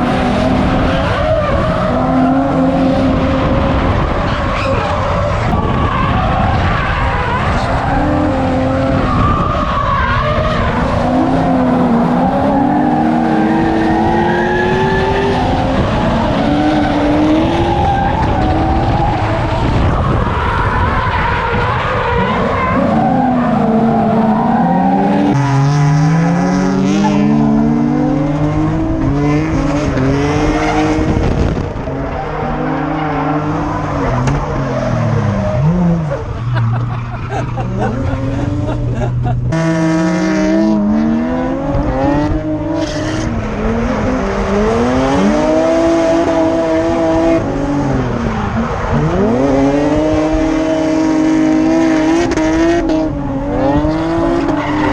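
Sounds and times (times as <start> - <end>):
car engines revving: 0.0 - 54.9.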